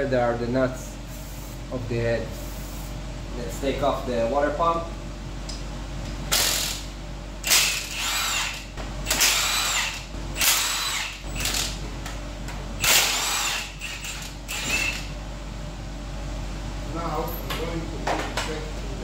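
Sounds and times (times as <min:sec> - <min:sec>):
power drill bursts: 0:07.4 - 0:11.7, 0:12.8 - 0:15.0.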